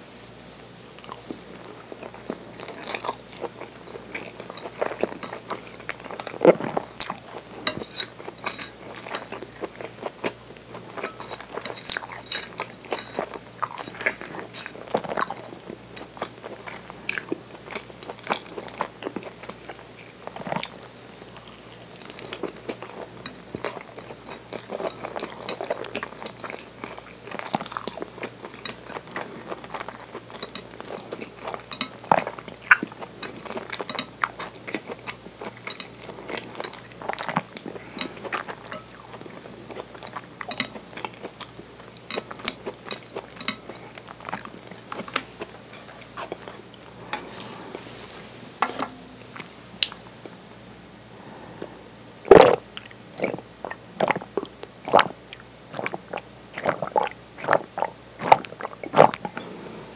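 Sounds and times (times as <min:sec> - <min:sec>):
close chewing mouth clicks: 0:52.3 - 0:59.4.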